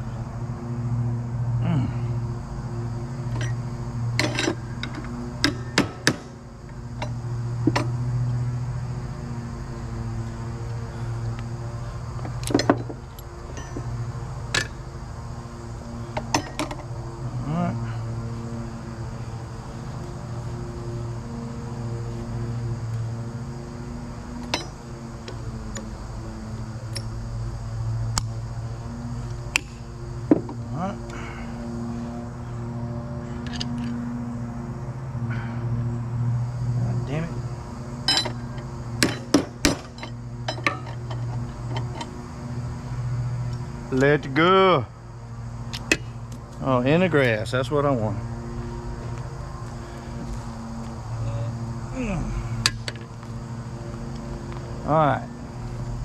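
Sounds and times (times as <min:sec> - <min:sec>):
steady low hum: 0:00.0 - 0:56.0
hand tools clanking on metal: 0:04.2 - 0:06.3, 0:13.5 - 0:13.9, 0:38.1 - 0:38.4, 0:39.0 - 0:42.1.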